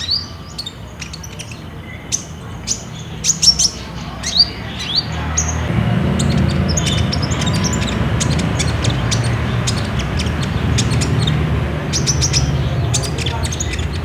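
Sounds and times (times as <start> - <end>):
birds chirping high notes: 0.0 - 14.0
steady low rumble: 5.2 - 14.0.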